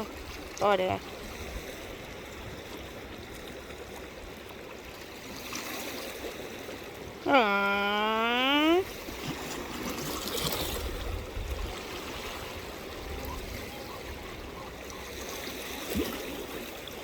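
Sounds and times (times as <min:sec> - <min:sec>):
seawater rushing around rocks: 0:08.8 - 0:17.0.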